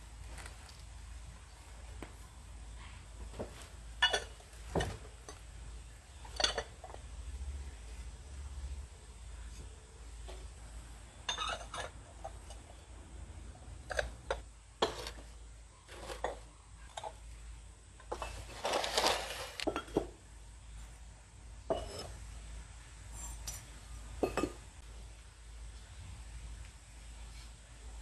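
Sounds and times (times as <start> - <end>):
ceramic pieces clinking: 4.0 - 4.4, 6.2 - 7.0, 11.2 - 12.6.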